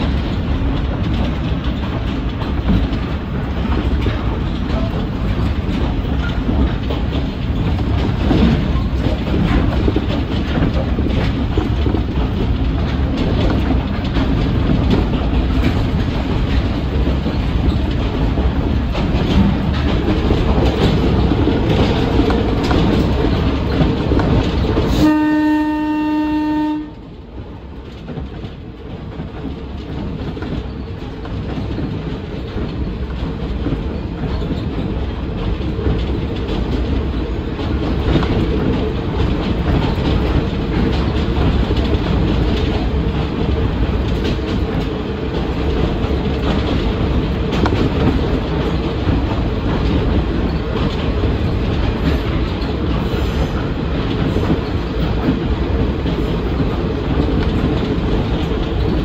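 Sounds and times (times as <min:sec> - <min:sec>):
diesel railcar running: 0:00.0 - 0:59.0
rail-joint clickety-clack: 0:00.0 - 0:59.0
train horn blast: 0:24.9 - 0:27.0.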